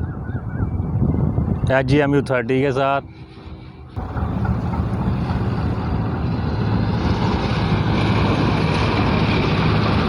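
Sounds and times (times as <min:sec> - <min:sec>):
diesel locomotive engine humming: 0:02.3 - 0:10.0
train rumbling: 0:03.0 - 0:10.0.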